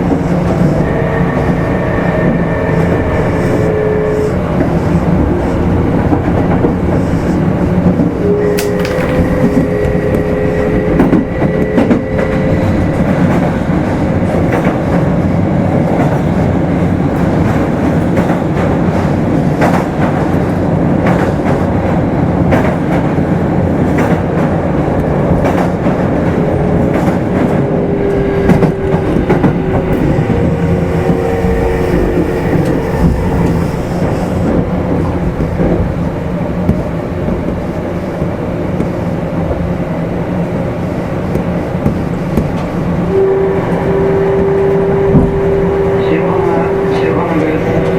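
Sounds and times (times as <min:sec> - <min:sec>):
train wheels rumbling: 0:00.0 - 0:47.9.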